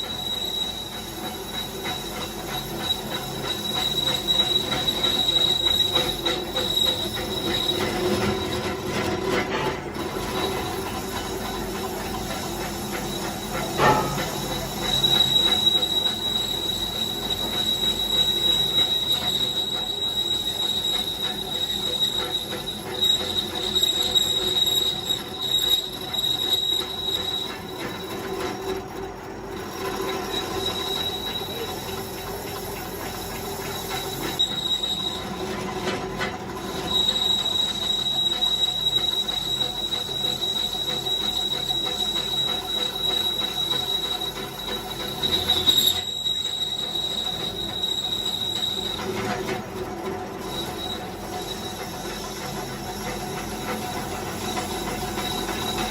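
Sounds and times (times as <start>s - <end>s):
power tool squealing on metal: 0.0s - 55.9s.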